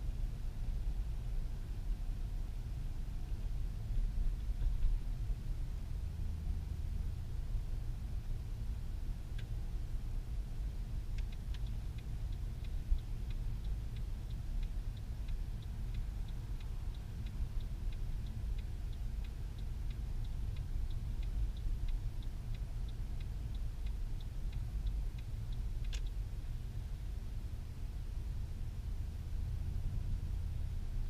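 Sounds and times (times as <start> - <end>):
cabin and road rumble: 0.0 - 31.0
car turn signal ticking: 8.4 - 29.6
sharp click: 25.2 - 26.2.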